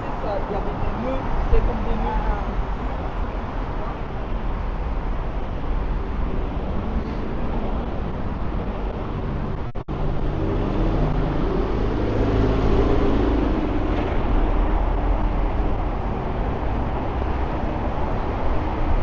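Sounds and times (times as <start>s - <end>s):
road traffic: 0.0s - 19.0s
vehicle passing: 6.0s - 19.0s.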